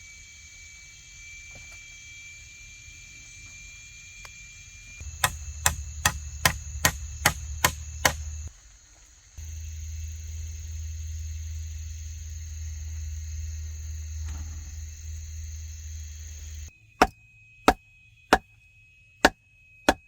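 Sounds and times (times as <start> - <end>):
blade chopping: 5.1 - 8.5.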